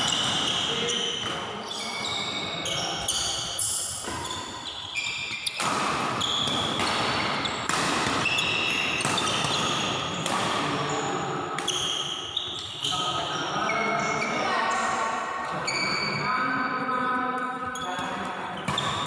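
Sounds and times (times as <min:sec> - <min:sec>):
shoes squeaking on court floor: 0:00.0 - 0:14.5, 0:15.6 - 0:16.3, 0:17.6 - 0:19.0
rackets hitting shuttlecock: 0:03.0 - 0:10.9, 0:11.6 - 0:12.7, 0:18.6 - 0:19.0.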